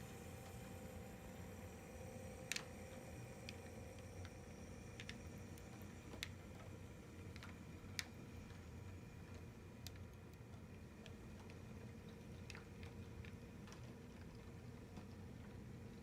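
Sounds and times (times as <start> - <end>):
light clicks of model train: 5.0 - 15.8.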